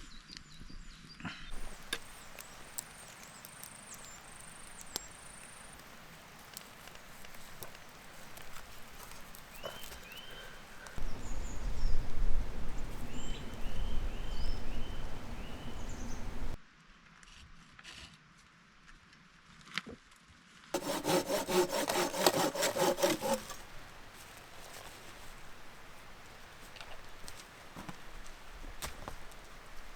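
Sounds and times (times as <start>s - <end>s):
small birds chirping: 1.5s - 16.6s
hand saw cutting wood: 1.6s - 11.0s, 20.8s - 25.7s.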